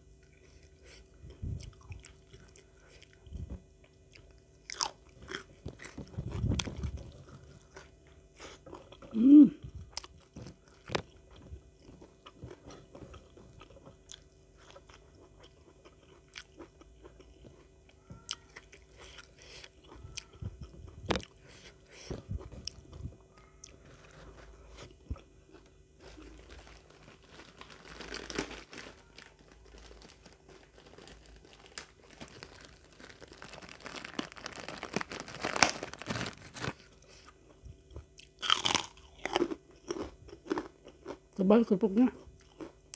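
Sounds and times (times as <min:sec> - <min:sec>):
chewing and crunching food: 0:00.0 - 0:42.9
plastic rustling: 0:26.0 - 0:37.2.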